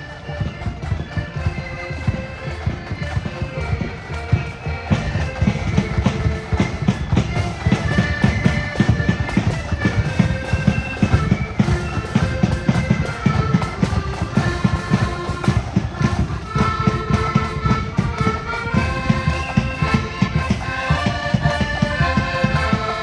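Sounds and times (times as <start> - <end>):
accordions playing chords: 0.0 - 23.0
bass and snare drums: 0.0 - 23.0.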